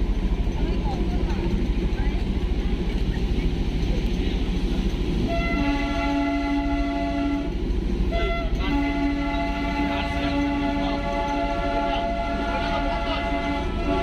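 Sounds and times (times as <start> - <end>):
train rumbling: 0.0 - 14.0
train horn blasts: 5.2 - 14.0.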